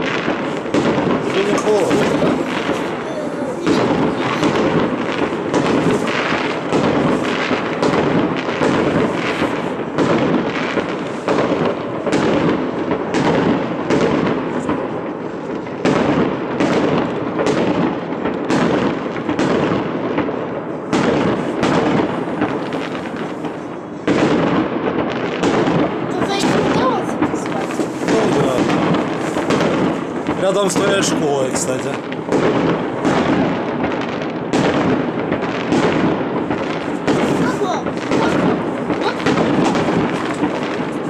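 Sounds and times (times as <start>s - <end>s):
fireworks bursting: 0.0s - 41.0s.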